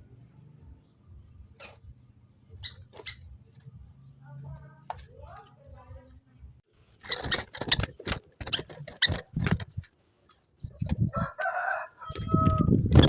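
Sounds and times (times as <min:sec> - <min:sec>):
rooster crowing: 0:11.1 - 0:12.7.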